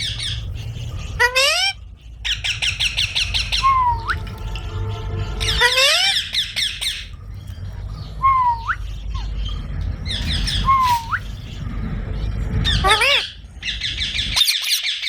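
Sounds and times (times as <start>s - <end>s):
parrots squawking: 0.0s - 7.2s, 12.4s - 15.0s
parrot whistled call: 2.4s - 4.2s, 10.6s - 11.2s.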